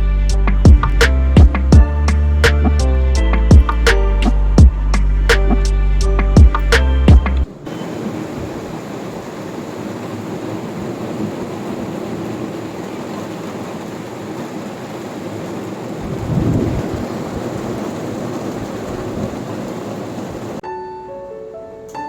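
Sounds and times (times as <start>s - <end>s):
thunder rumbling: 0.5s - 20.6s
steady rain falling: 7.3s - 20.6s.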